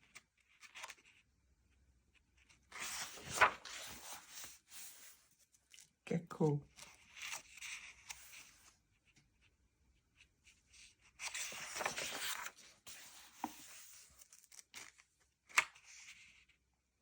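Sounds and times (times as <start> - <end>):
paper pages rustling: 0.1 - 1.2, 2.4 - 5.9, 6.7 - 8.7, 10.7 - 16.4.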